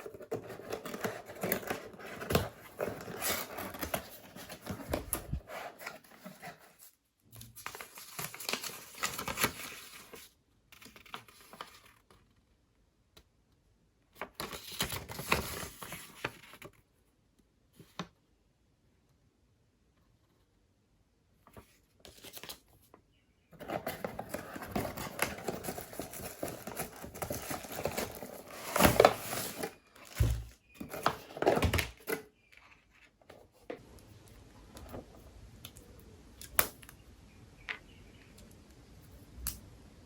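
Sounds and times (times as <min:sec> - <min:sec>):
plastic rustling and crinkling: 0:23.6 - 0:33.8.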